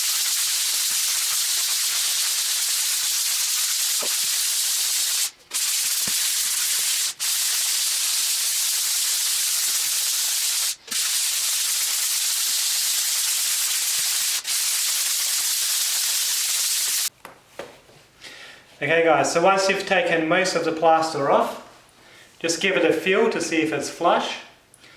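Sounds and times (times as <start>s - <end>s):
sandpaper rubbing on plaster: 0.0s - 17.1s.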